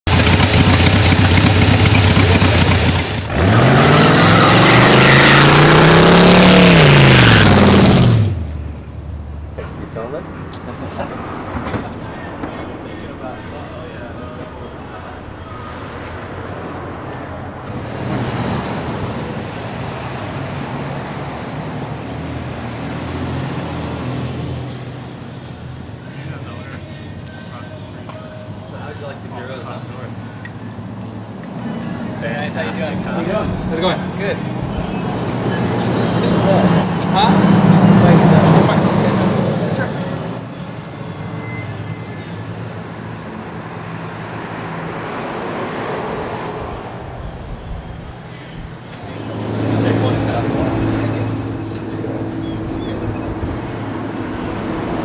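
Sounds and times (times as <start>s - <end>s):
vehicle engine revving: 0.0s - 8.9s, 13.1s - 25.1s, 31.5s - 40.5s, 48.9s - 55.0s
broad rushing noise: 9.7s - 25.0s, 41.8s - 55.0s.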